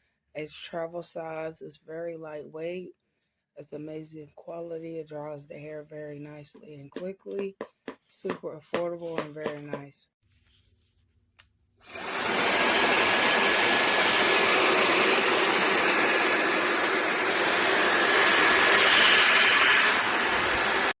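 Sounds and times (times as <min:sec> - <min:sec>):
hair dryer blowing air: 0:11.9 - 0:21.0.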